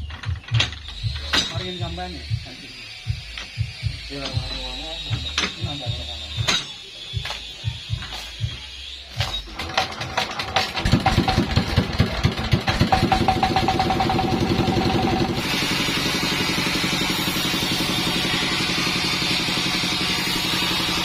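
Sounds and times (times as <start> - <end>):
sawmill engine running: 0.9 - 21.0
loud steady hiss: 15.2 - 21.0.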